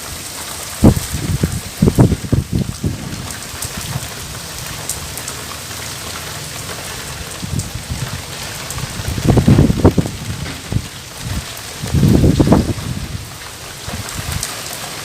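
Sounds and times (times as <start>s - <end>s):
rain falling: 0.0s - 15.0s
low thumps: 9.2s - 13.0s.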